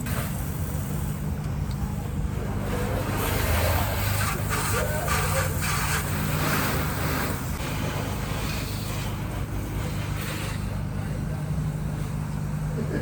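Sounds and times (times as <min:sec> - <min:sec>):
steady low hum: 0:00.0 - 0:13.0
hose nozzle spraying water: 0:03.2 - 0:07.5.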